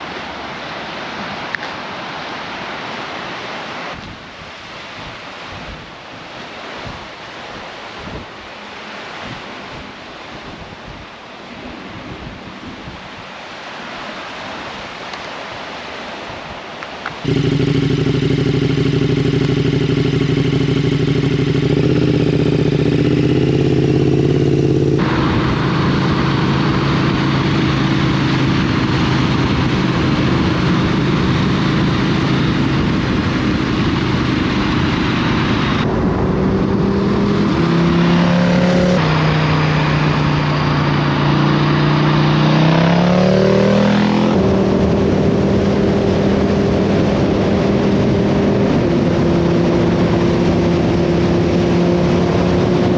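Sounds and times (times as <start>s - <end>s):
wind rushing over microphone: 3.2s - 52.9s
motorcycle engine running: 17.2s - 52.9s.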